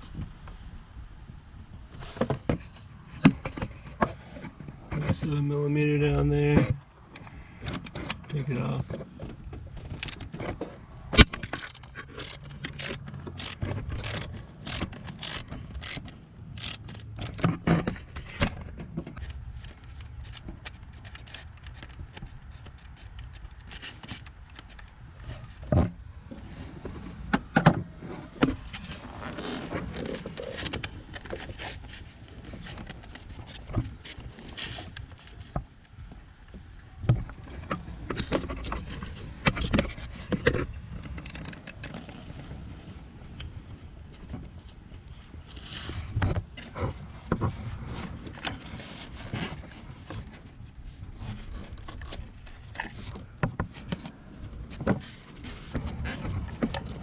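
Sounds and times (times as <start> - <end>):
ratchet clicking: 7.6 - 8.0, 10.0 - 10.3, 11.6 - 17.5
metal tools clanking and scraping: 11.4 - 17.6.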